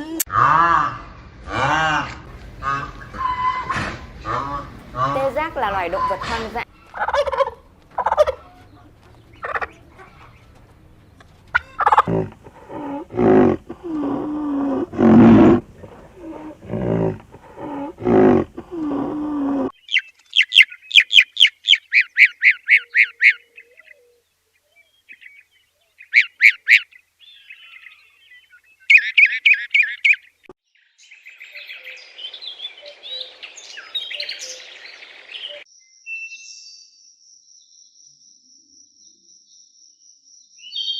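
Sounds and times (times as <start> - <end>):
turkeys gobbling: 1.5 - 14.1
turkeys calling: 1.6 - 18.9, 26.0 - 27.0, 28.9 - 30.4.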